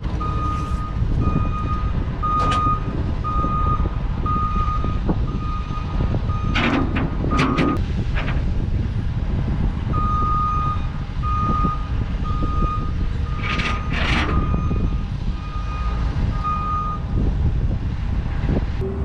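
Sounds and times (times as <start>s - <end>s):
engine running: 0.0s - 19.0s
truck reversing alarm beeping: 0.2s - 7.8s, 9.9s - 17.1s.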